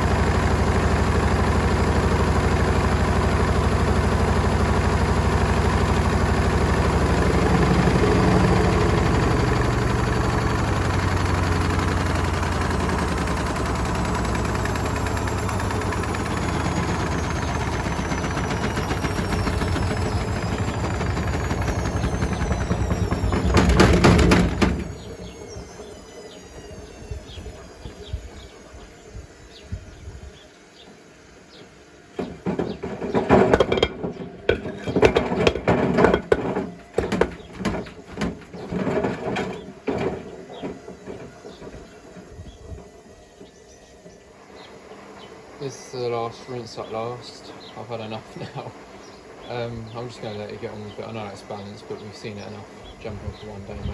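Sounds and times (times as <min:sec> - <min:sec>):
washing machine motor whine: 0:00.0 - 0:53.9
knocks and rattle in drum: 0:06.6 - 0:25.6, 0:32.2 - 0:41.9
bricks clattering in drum: 0:32.2 - 0:41.4.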